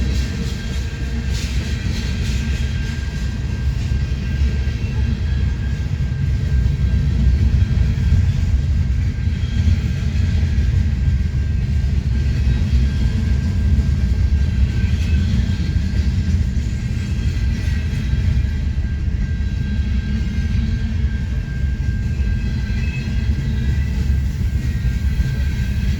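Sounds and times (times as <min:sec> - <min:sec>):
freight train rolling past: 0:00.0 - 0:25.9.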